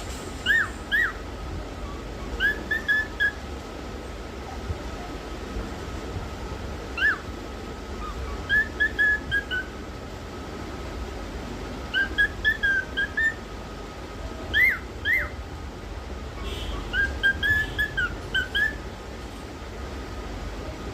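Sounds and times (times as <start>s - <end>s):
cockatiel whistling: 0.4s - 1.2s, 1.8s - 3.4s, 7.0s - 7.2s, 8.0s - 9.7s, 11.9s - 13.4s, 14.5s - 15.4s, 16.4s - 18.8s.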